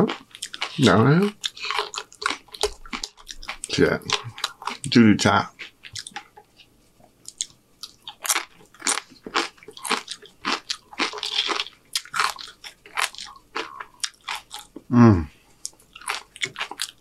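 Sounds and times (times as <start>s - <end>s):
crunching chips: 0.0s - 5.0s, 7.3s - 14.8s, 15.6s - 17.0s.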